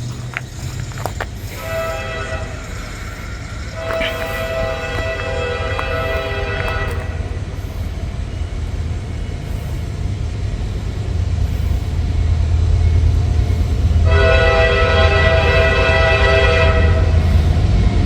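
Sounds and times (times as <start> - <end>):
train rumble: 0.0 - 18.0
train horn blast: 1.5 - 7.4, 14.0 - 17.4.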